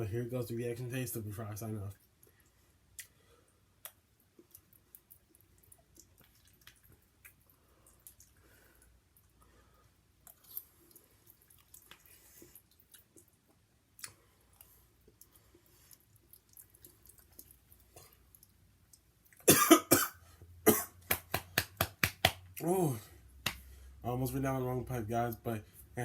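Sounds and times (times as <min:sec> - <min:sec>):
mouth sounds while eating: 0:02.2 - 0:19.5
person coughing: 0:19.5 - 0:21.0.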